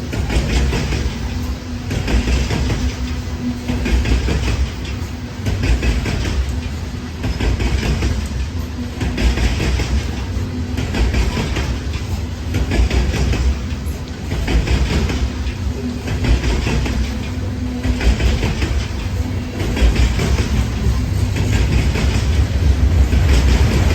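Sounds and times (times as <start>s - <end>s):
train cars rumbling: 0.0s - 23.9s
wheels clicking over rail joints: 0.0s - 23.9s.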